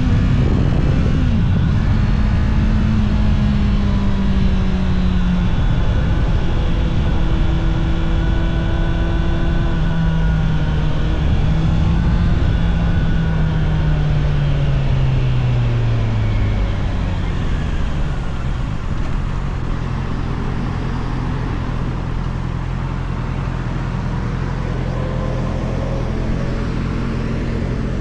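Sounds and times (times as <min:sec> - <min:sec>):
wind and road noise: 0:00.0 - 0:28.0
motorcycle engine slowing: 0:16.4 - 0:28.0.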